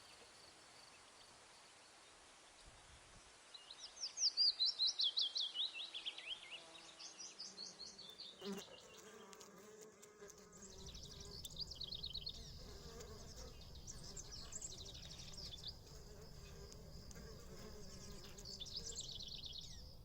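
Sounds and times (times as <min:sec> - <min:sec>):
low insect buzz: 0:05.8 - 0:20.0.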